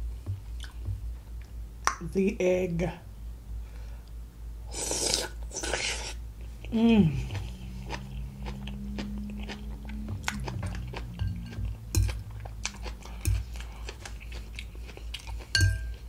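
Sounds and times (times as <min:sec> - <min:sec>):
low closed-mouth hum: 0:00.0 - 0:16.0
chewing soft food: 0:04.8 - 0:16.0.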